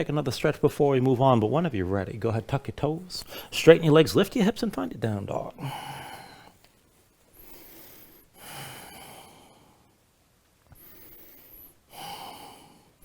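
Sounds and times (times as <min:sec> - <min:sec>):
person breathing slowly: 0:03.2 - 0:03.5, 0:05.5 - 0:10.0, 0:10.7 - 0:13.0.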